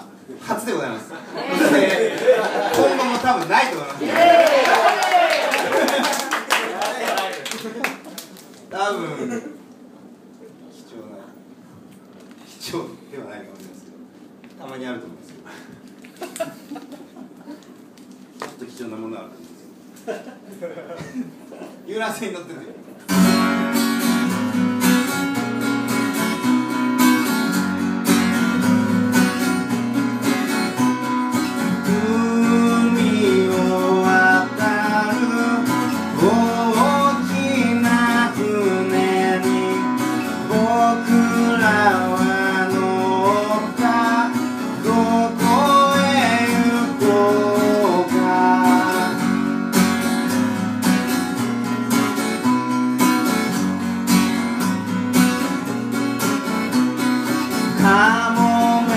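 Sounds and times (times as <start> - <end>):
acoustic guitar strumming: 23.1 - 58.9
person singing: 31.9 - 49.4, 57.8 - 58.9.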